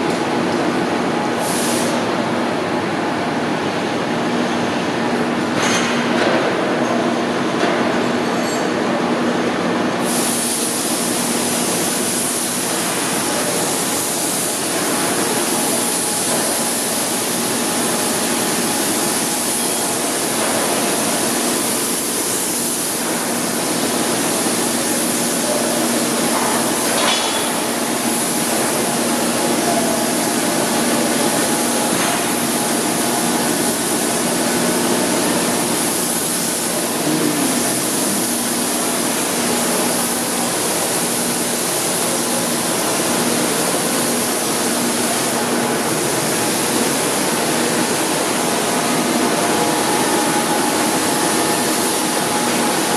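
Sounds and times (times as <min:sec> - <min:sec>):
constant machine hum: 0:11.2 - 0:52.9
surface grinder running: 0:36.7 - 0:39.2.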